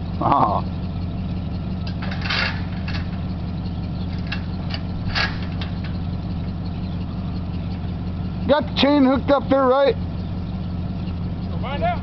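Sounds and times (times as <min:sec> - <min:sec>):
pickup truck engine idling: 0:00.0 - 0:12.0
short sharp clanks: 0:01.8 - 0:03.4, 0:04.0 - 0:06.3.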